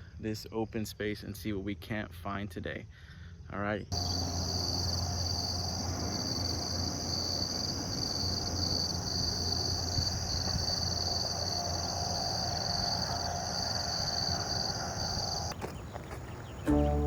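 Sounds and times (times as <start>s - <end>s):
insects droning: 3.9s - 17.0s
low steady hum: 16.6s - 17.0s.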